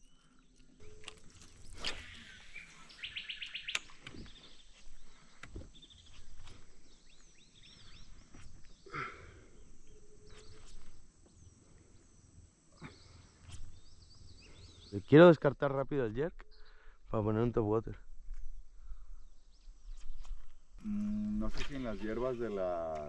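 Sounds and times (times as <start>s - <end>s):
birds calling and singing: 0.0s - 23.0s
sharp clicks: 3.7s - 4.2s.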